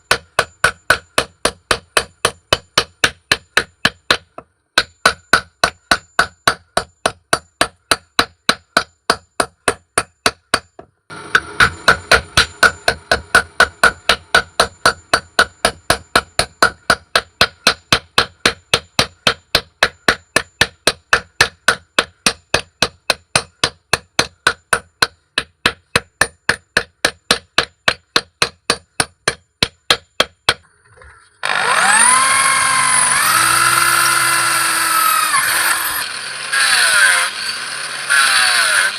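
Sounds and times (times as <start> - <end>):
hammer striking metal on anvil: 0.0 - 30.6
power tool spinning up: 31.4 - 38.9.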